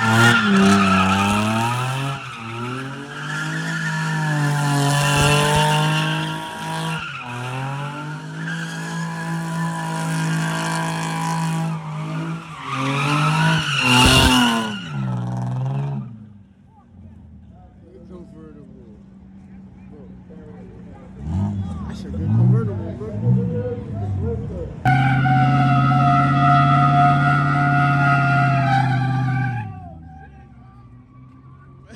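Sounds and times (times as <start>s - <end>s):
tyres squealing: 0.0s - 10.7s, 24.9s - 31.9s
car engine at high revs: 0.0s - 16.3s, 21.0s - 30.4s.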